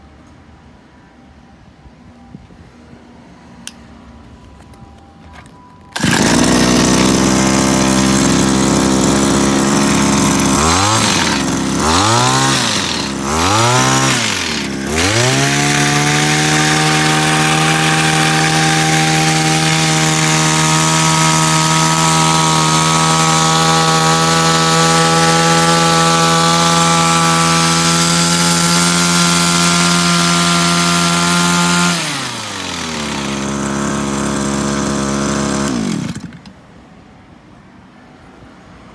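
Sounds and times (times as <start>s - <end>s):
small engine running at high speed: 6.0s - 36.5s.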